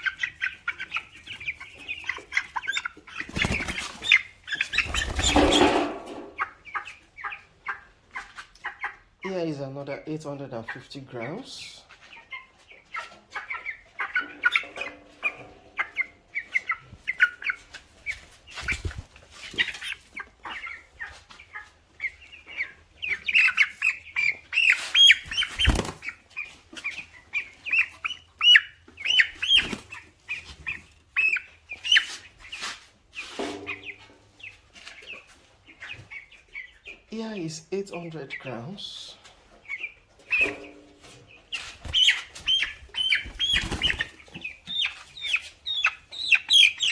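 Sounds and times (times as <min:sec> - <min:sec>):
chicks peeping: 0:00.0 - 0:46.9
wings flapping and rustling: 0:01.2 - 0:06.2, 0:17.6 - 0:20.2, 0:24.6 - 0:27.0, 0:29.1 - 0:31.0, 0:41.1 - 0:46.9.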